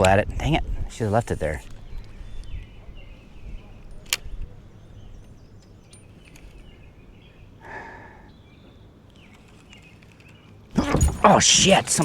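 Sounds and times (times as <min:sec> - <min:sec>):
low wind rumble on microphone: 0:00.0 - 0:07.6
bird chirps: 0:01.6 - 0:12.0
breathy sound: 0:07.6 - 0:08.3.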